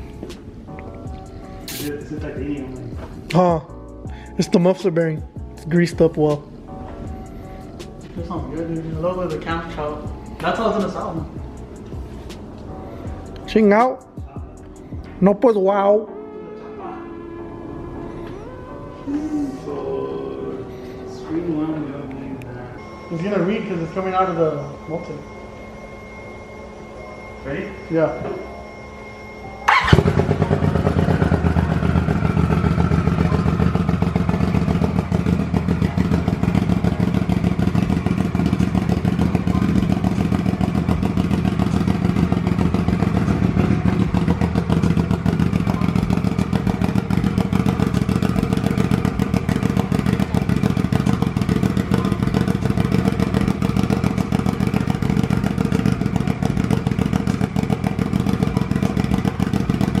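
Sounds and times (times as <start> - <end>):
faint whine: 18.0 - 34.8
engine idling: 29.7 - 60.0.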